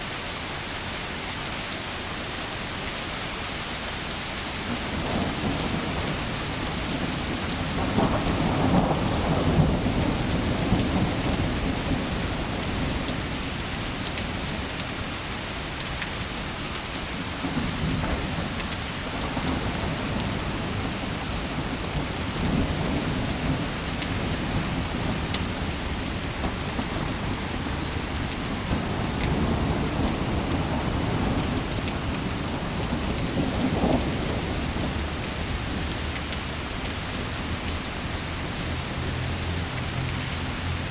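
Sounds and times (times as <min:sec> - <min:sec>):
heavy rain: 0:00.0 - 0:40.9
low rolling thunder: 0:04.7 - 0:15.0, 0:17.3 - 0:38.2.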